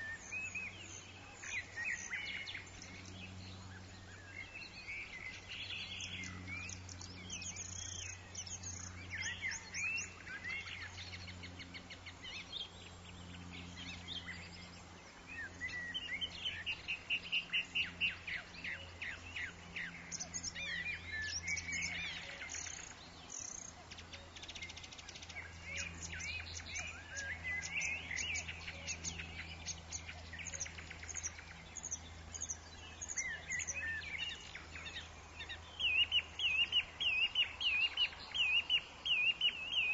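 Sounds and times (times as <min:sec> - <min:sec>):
forest birds chirping and singing: 0:00.0 - 0:39.9
steady low hum: 0:00.0 - 0:39.9.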